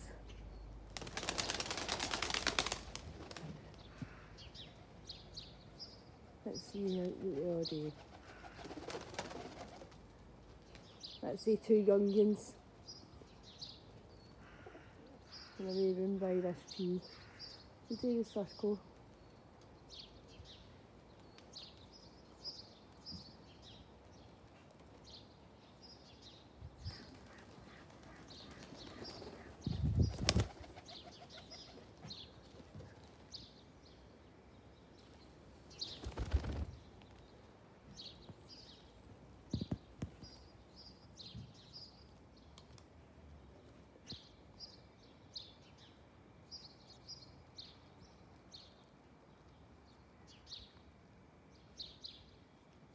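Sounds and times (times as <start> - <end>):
pigeon wingbeats: 1.0 - 3.8, 7.3 - 10.1, 26.9 - 33.3, 35.8 - 36.8.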